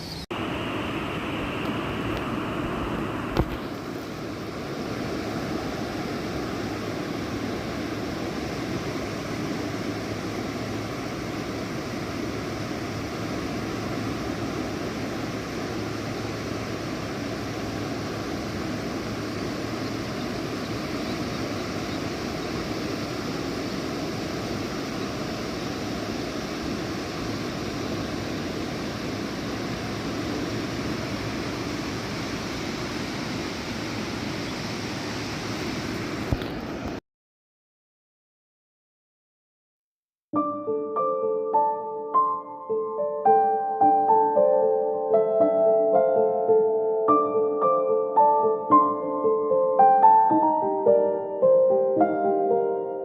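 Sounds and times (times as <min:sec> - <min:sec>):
steady rushing noise: 0:00.0 - 0:37.0.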